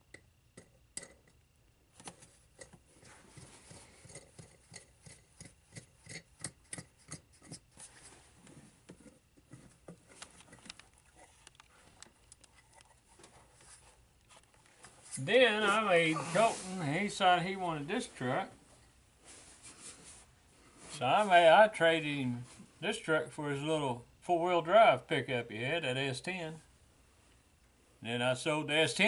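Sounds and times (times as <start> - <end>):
hands handling parts clicking: 8.9 - 13.4.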